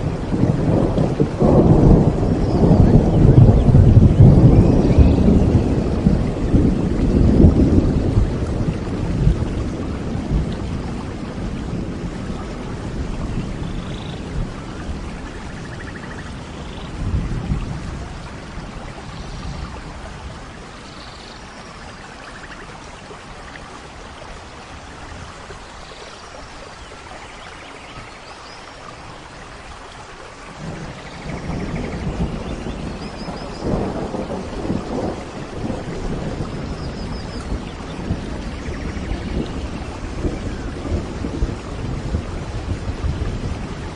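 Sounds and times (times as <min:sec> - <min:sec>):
rolling thunder: 0:00.0 - 0:20.8, 0:30.5 - 0:43.9
rain falling: 0:00.0 - 0:43.9.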